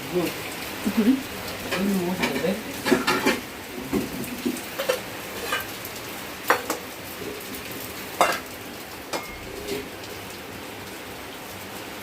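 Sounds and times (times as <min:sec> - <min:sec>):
rain hissing: 0:00.0 - 0:12.0
pots and utensils clinking: 0:01.6 - 0:05.8, 0:06.5 - 0:06.9, 0:08.2 - 0:09.9.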